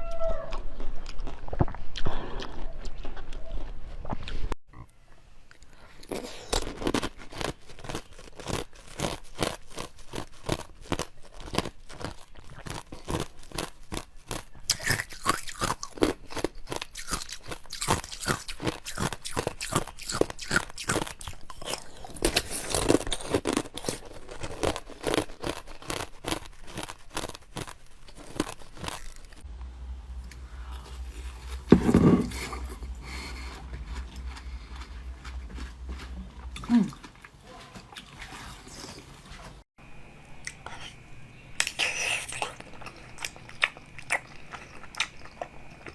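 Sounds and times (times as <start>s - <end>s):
chewing crunchy food: 0.1s - 4.9s, 5.5s - 29.5s, 30.2s - 39.6s, 40.4s - 45.9s.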